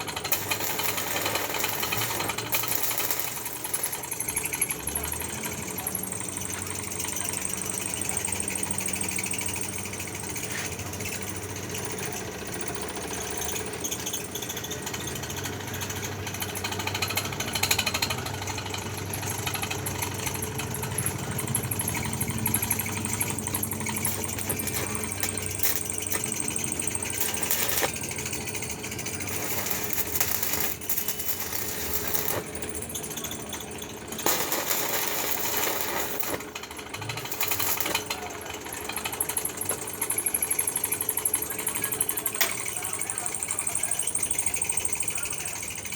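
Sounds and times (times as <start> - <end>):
welding arc crackling: 0.0 - 4.7, 21.5 - 33.0, 33.7 - 38.3
welding machine hum: 0.0 - 10.5, 11.1 - 43.9.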